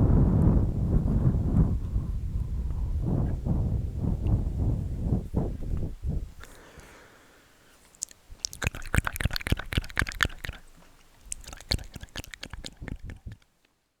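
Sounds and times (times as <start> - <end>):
wet mouth clicks: 7.9 - 13.5.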